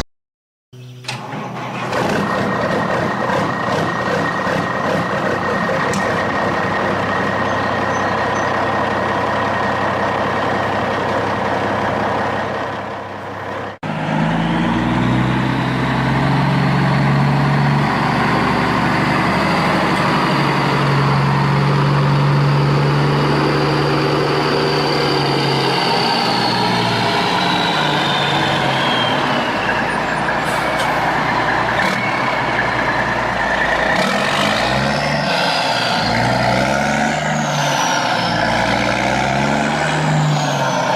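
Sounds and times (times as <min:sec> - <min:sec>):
heavy vehicle engine running: 0:00.8 - 0:40.9.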